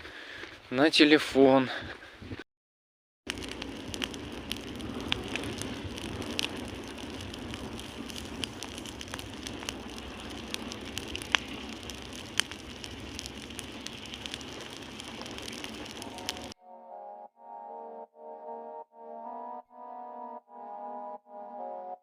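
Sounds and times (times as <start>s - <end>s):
campfire crackling and popping: 3.3s - 16.6s
fire hissing: 3.3s - 16.6s.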